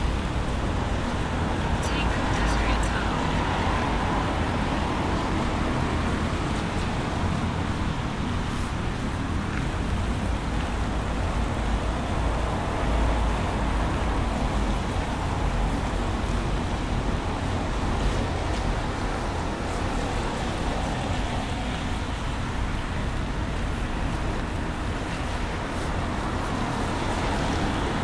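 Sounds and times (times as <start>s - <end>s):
heavy rain falling: 0.0s - 28.0s
road traffic rumble: 0.0s - 28.0s.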